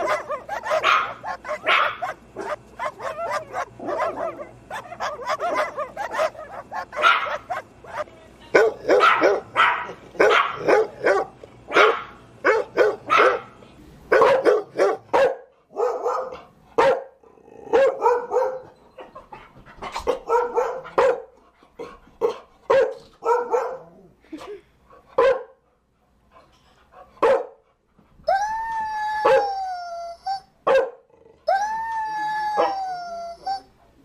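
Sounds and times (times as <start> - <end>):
dogs barking: 0.0 - 18.7, 19.9 - 24.0, 25.2 - 25.6, 27.2 - 27.6, 30.7 - 31.1
low background hum: 0.0 - 34.0.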